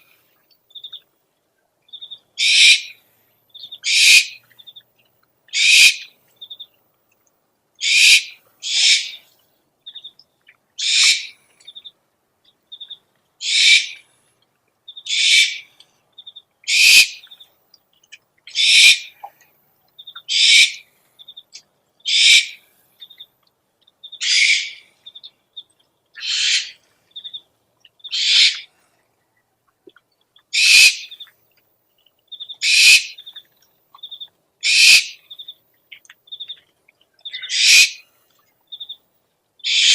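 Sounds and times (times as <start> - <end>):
owl rasping screeches: 2.4 - 2.9, 3.8 - 4.4, 5.6 - 6.0, 7.8 - 9.2, 10.8 - 11.3, 13.4 - 14.0, 15.1 - 15.7, 16.7 - 17.2, 18.5 - 19.1, 20.3 - 20.8, 22.1 - 22.6, 24.2 - 24.8, 26.2 - 26.8, 28.1 - 28.7, 30.6 - 31.1, 32.6 - 33.2, 34.6 - 35.2, 37.4 - 38.0, 39.7 - 39.9.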